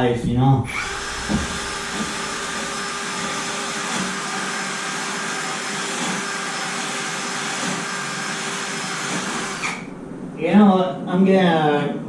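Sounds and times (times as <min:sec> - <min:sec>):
power sander whining: 0:00.7 - 0:09.9.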